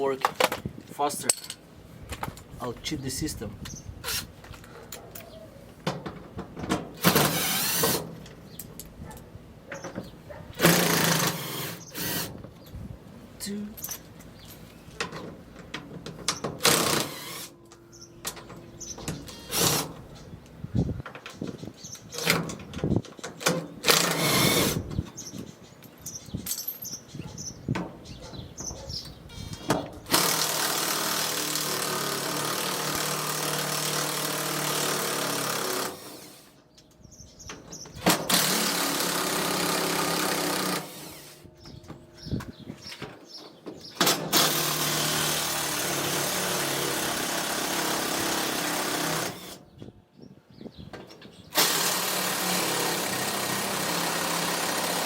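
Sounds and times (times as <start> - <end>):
power drill running: 7.0 - 8.0, 10.6 - 12.3, 16.6 - 17.5, 23.9 - 24.8, 30.1 - 36.5, 38.3 - 41.4, 44.0 - 49.6, 51.6 - 55.0.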